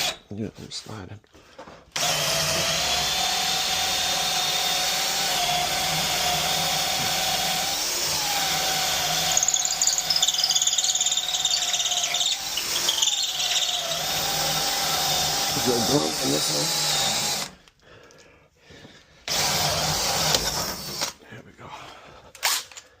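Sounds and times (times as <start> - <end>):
power drill boring into wood: 0.0 - 0.2, 1.9 - 17.6, 19.2 - 21.2.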